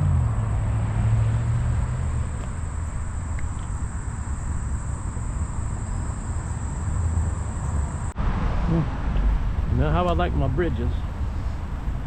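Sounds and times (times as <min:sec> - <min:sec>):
high-pitched whine: 0:00.0 - 0:08.9
bicycle tyres rolling on path: 0:00.2 - 0:08.0.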